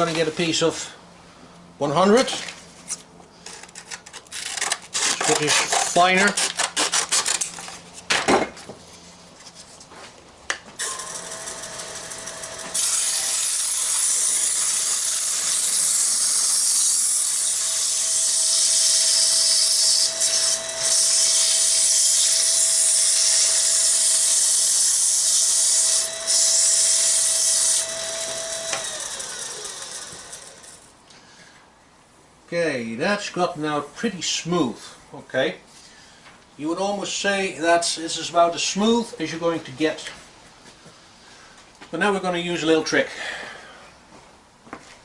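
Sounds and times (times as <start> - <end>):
lathe motor whine: 10.8 - 13.4, 19.7 - 30.8.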